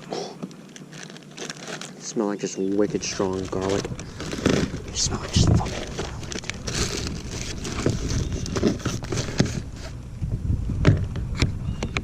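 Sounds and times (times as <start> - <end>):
wind buffeting microphone: 2.7 - 12.0.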